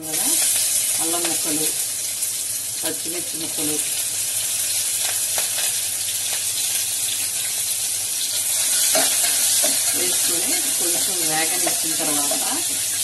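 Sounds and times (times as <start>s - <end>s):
food sizzling in hot oil: 0.0s - 13.0s
spoon stirring in pot: 8.7s - 11.8s.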